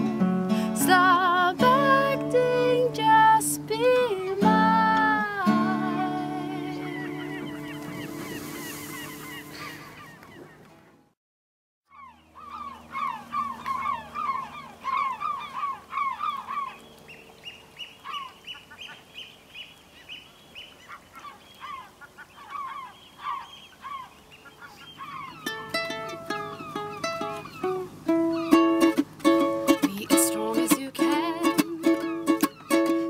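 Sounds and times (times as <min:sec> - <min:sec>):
plucked-string music: 0:00.0 - 0:08.4, 0:25.3 - 0:33.0
birds calling: 0:03.1 - 0:11.0, 0:11.9 - 0:30.7, 0:31.5 - 0:33.0.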